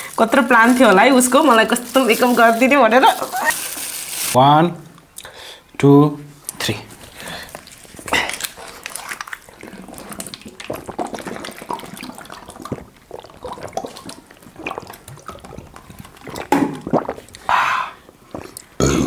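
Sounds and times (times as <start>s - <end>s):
person gulping a drink: 7.4s - 19.0s
swallowing noises: 7.5s - 19.0s.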